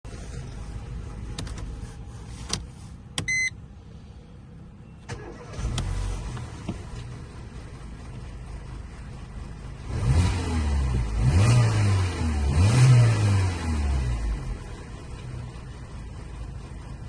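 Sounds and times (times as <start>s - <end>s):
car engine cranking and idling: 0.0s - 17.0s
short electronic beep: 3.3s - 3.6s.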